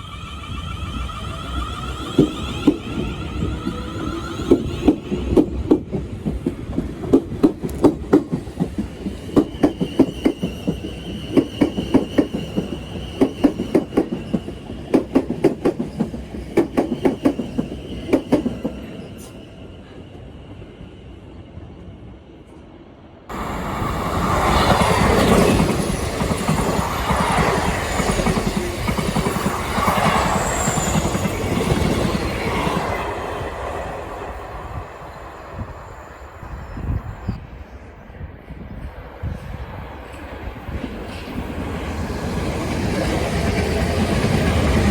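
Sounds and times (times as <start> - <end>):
high wheel squeal: 0.0 - 5.3, 23.3 - 37.7
train rushing past: 0.0 - 22.2, 23.2 - 44.9
train wheels clicking over rail joints: 1.4 - 18.9.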